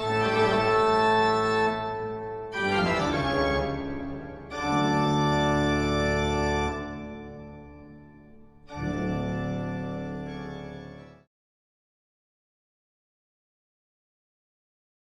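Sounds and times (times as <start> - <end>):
organ playing sustained chords: 0.0 - 11.3.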